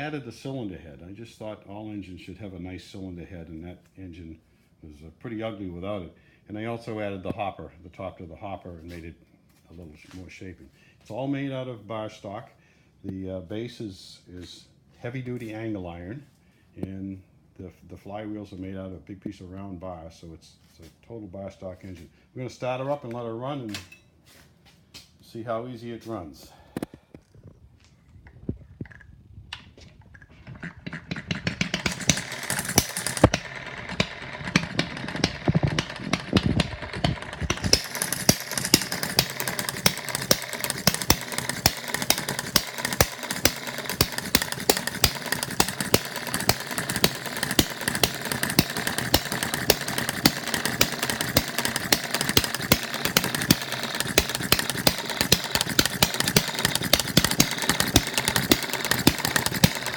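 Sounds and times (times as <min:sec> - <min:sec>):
small engine clicking and popping: 0:28.2 - 0:59.9.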